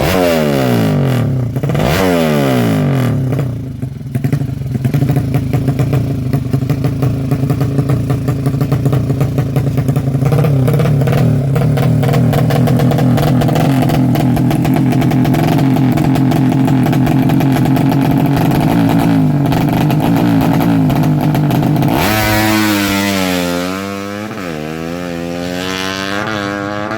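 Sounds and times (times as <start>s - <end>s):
motorcycle engine idling: 2.8s - 23.8s.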